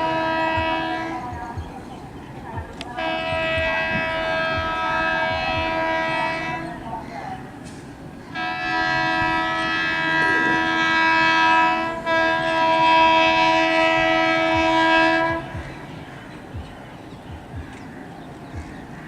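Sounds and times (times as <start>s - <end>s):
locomotive air horn blasts: 0.0s - 1.3s, 3.0s - 6.8s, 8.3s - 15.9s.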